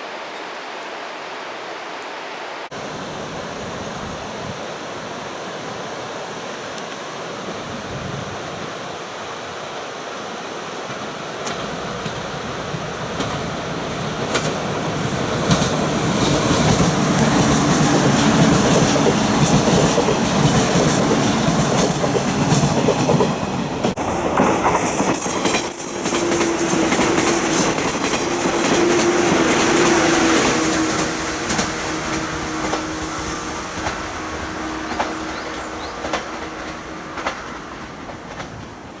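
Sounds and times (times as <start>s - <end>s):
rail-joint clicks: 14.2s - 38.8s
train wheel squeal: 16.2s - 23.3s, 23.9s - 38.8s.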